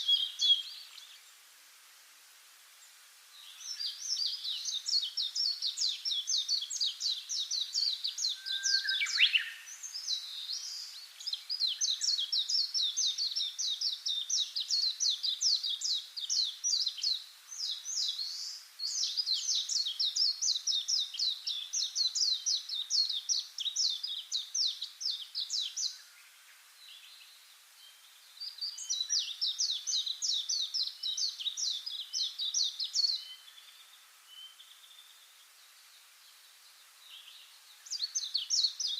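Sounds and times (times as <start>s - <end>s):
songbird singing: 0.0s - 1.8s, 2.4s - 38.9s.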